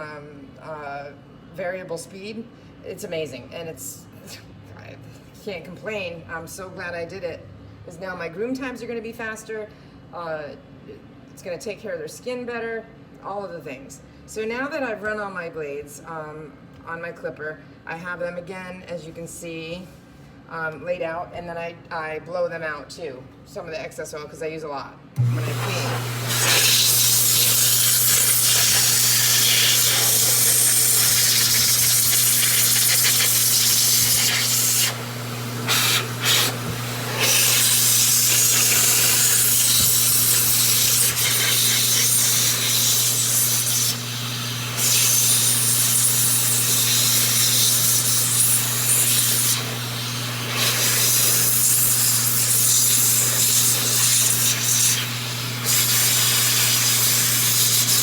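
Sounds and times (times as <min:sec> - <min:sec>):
air jet hissing: 0:25.2 - 0:44.0
motor hum: 0:25.2 - 0:46.8.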